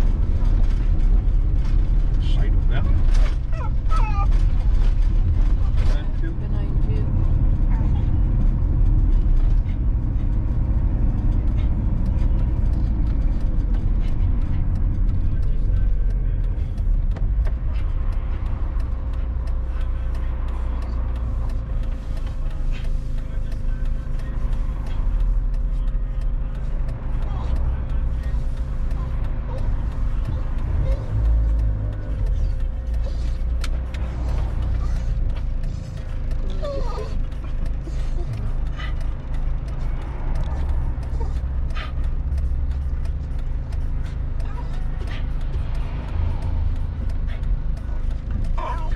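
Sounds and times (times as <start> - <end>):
creaks and rattles: 0.0 - 23.6
engine and road rumble: 0.0 - 48.9.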